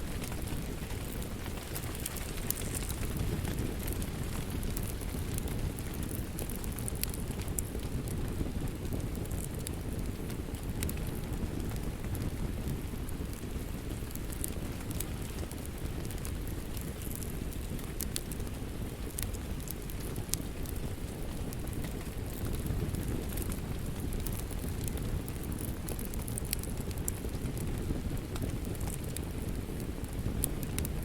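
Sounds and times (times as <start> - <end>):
fire flames rumbling: 0.0 - 31.0
fire popping and crackling: 0.0 - 31.0.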